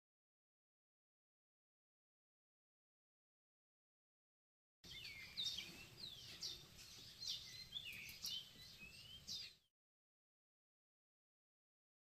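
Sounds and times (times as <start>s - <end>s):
small birds chirping: 4.8s - 9.7s.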